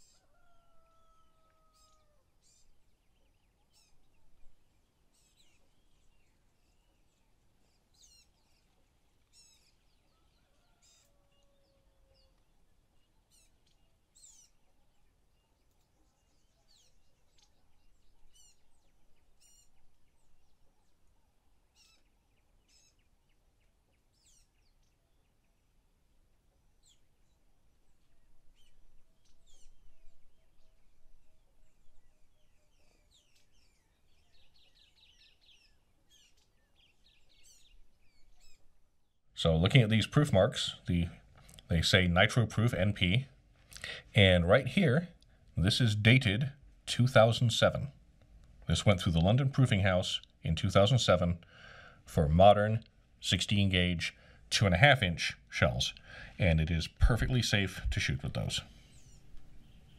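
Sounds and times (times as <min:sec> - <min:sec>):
bird chirps and calls: 0:00.0 - 0:25.6, 0:28.0 - 0:38.8, 0:58.2 - 0:59.9.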